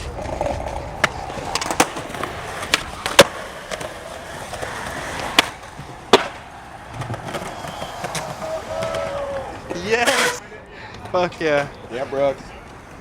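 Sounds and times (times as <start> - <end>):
skateboard deck clacking on ground: 0.0 - 10.4
skateboard wheels rolling on pavement: 0.0 - 13.0.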